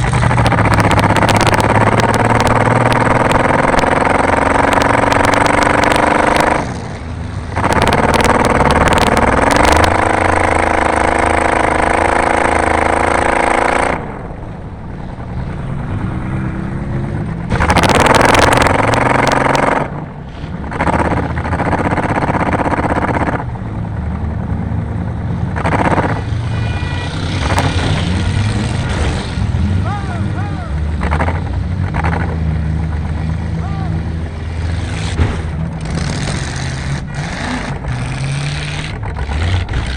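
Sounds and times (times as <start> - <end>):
car engine revving hard: 0.0 - 14.1, 17.5 - 20.0, 25.6 - 30.2, 30.8 - 39.9.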